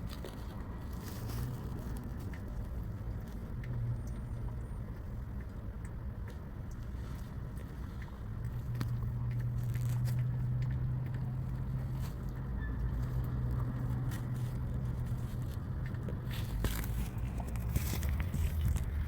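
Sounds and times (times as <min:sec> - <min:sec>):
small clicks and scrapes: 0:00.0 - 0:19.0.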